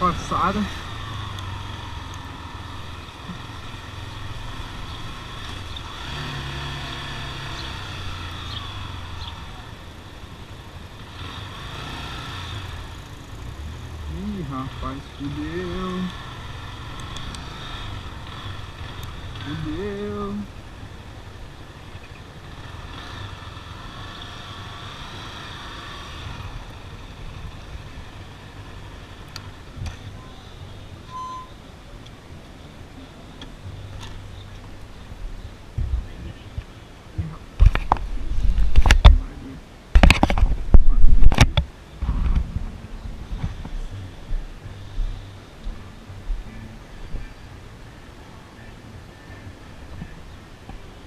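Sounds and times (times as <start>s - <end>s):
motorcycle engines idling: 0.0s - 38.3s, 41.6s - 51.0s
sharp clicks: 16.9s - 17.5s.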